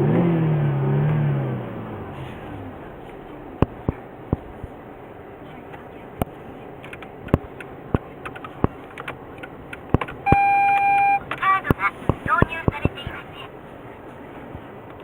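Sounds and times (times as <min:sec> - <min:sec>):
sharp clicks: 0:05.7 - 0:12.9
electronic beep: 0:10.3 - 0:11.2.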